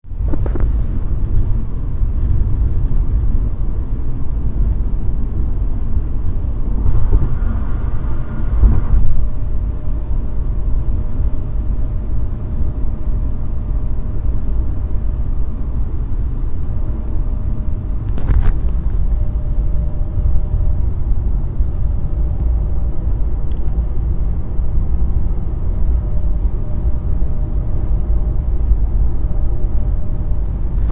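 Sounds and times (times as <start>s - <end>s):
car engine low rumble: 0.0s - 30.9s
faint whirring tone: 0.1s - 30.9s.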